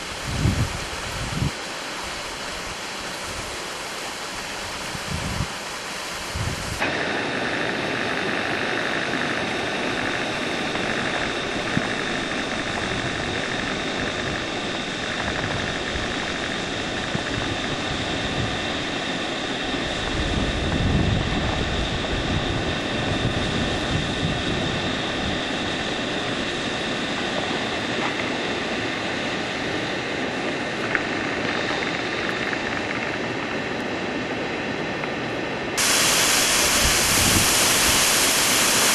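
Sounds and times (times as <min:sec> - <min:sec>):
waterfall rushing water: 0:35.8 - 0:38.9.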